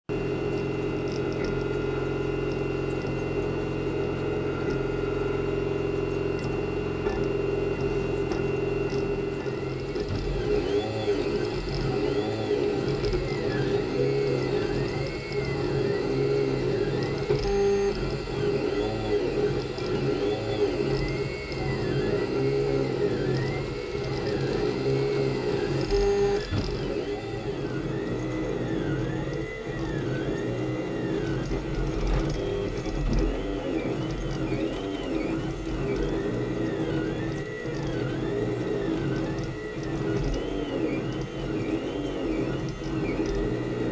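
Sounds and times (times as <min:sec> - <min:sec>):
printer stepper motors whining: 0:00.1 - 0:43.9
steady hum: 0:00.1 - 0:43.9.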